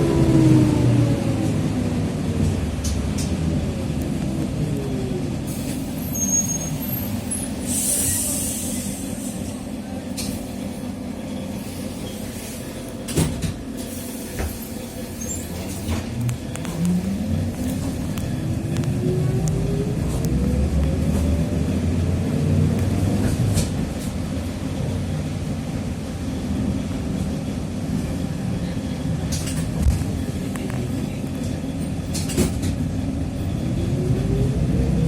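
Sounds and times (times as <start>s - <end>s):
trolleybus drivetrain whine: 0.0s - 35.0s
air brakes hissing: 5.5s - 10.6s, 13.8s - 15.9s.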